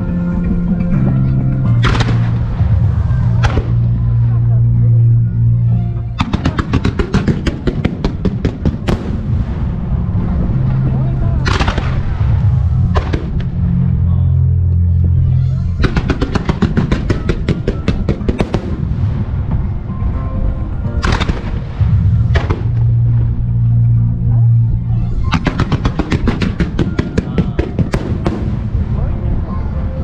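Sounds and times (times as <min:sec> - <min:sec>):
loud music: 0:00.0 - 0:30.0
rapid firework shots: 0:01.8 - 0:02.5, 0:06.2 - 0:09.6, 0:11.4 - 0:12.2, 0:13.0 - 0:13.4, 0:15.8 - 0:19.3, 0:21.0 - 0:22.8, 0:25.3 - 0:28.9.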